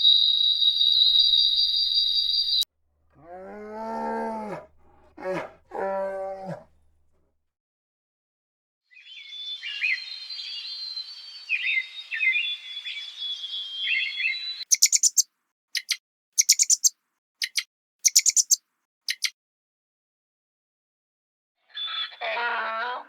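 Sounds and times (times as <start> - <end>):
sharp short bird chirps: 0.0 - 2.6, 14.6 - 19.4
small birds chirping and twittering: 0.0 - 2.6, 9.0 - 19.4.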